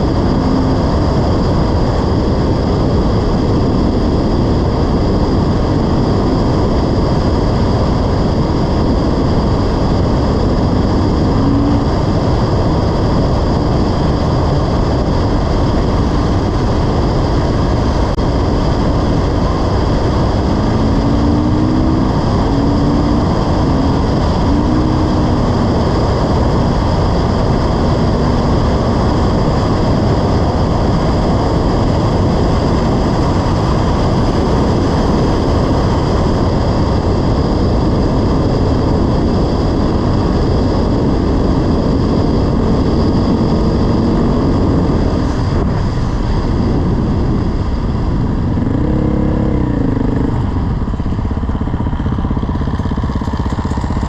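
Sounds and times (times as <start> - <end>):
wind rush on microphone: 0.0 - 54.0
dirt bike engine revving: 9.1 - 14.2, 18.2 - 32.6, 38.4 - 47.5, 48.2 - 54.0.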